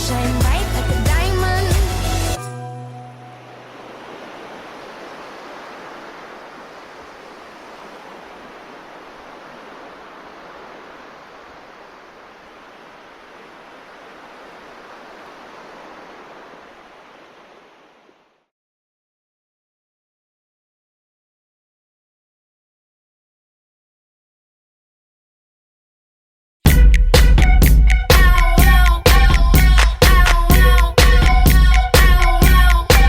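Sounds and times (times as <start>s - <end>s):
steady rushing noise: 3.4s - 18.2s.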